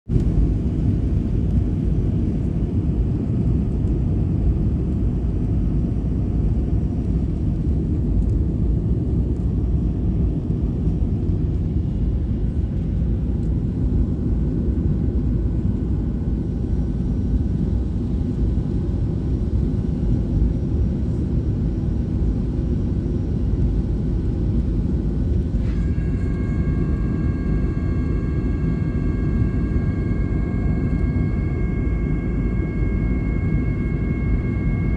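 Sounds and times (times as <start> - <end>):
aircraft deep rumble: 0.1 - 34.9
high whining tones: 25.4 - 34.9.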